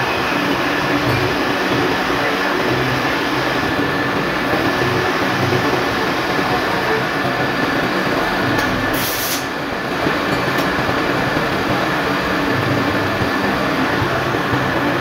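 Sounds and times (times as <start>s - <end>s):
metal lathe humming: 0.0s - 15.0s
brief hiss: 9.0s - 9.5s.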